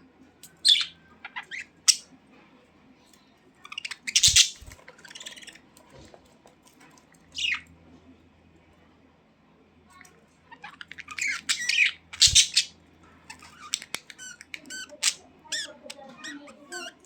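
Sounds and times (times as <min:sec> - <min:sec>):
budgerigars chirping and squawking: 0:00.6 - 0:02.1, 0:03.7 - 0:05.6, 0:07.3 - 0:07.7, 0:10.6 - 0:17.0.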